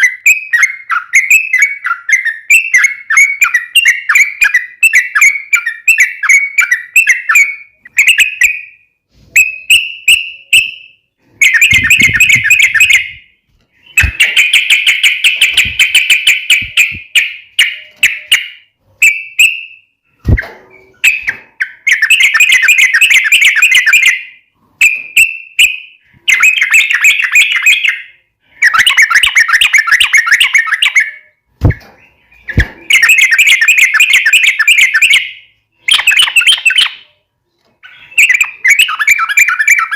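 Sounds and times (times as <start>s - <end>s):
bird chattering song: 9.4s - 37.2s, 37.8s - 39.9s.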